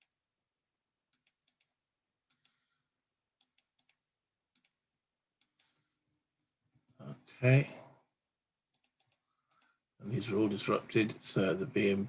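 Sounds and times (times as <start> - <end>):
faint sharp clicks: 2.3 - 2.6, 8.8 - 9.8.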